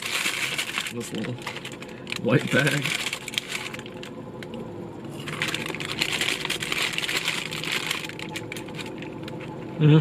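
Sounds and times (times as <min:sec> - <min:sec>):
paper bag crinkling: 0:00.0 - 0:04.1, 0:05.1 - 0:09.4.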